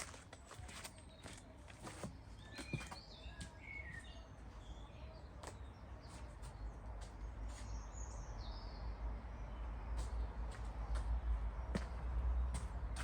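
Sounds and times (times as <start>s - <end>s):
small birds chirping: 0.5s - 13.0s.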